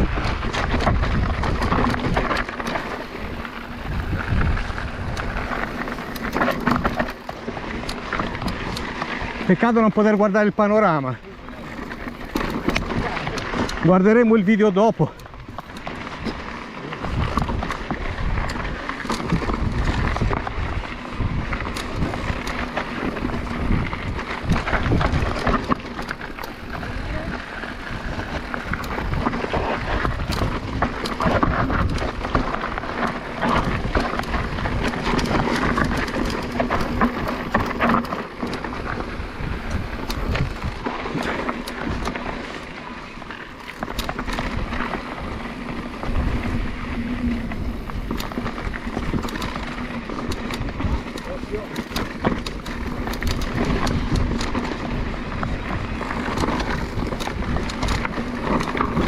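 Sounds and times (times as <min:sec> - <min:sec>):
wind buffeting microphone: 0:00.0 - 0:10.0, 0:14.9 - 0:59.0
bike frame and chain rattling: 0:00.0 - 0:59.0
bike tyres rolling over rocks: 0:00.0 - 0:59.0.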